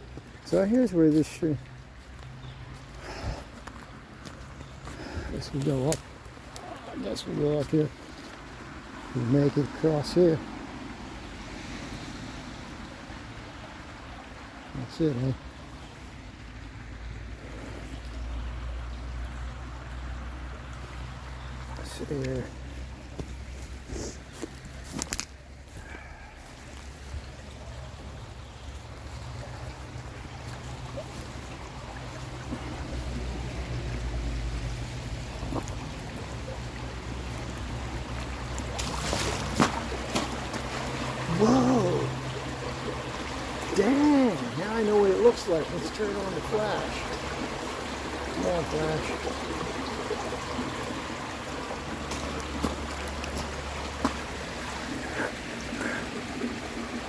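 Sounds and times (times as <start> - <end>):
stream water running: 0.0 - 57.0.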